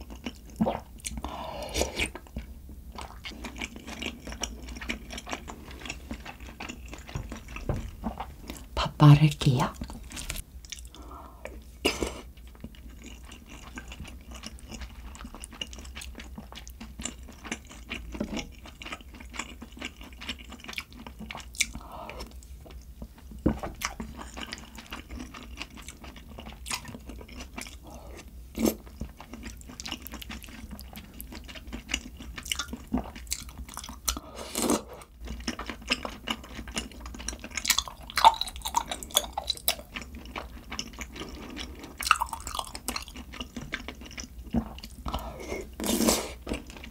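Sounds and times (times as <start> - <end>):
person chewing and biting: 23.8 - 46.9.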